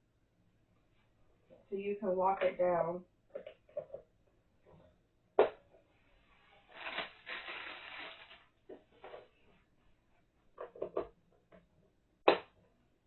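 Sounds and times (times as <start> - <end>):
plastic parts rustling and knocking: 3.3 - 4.9, 6.7 - 9.6, 10.5 - 11.8.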